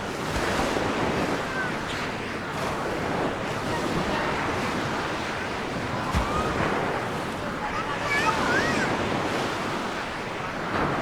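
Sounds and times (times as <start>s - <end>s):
waves washing onto beach: 0.0s - 11.0s.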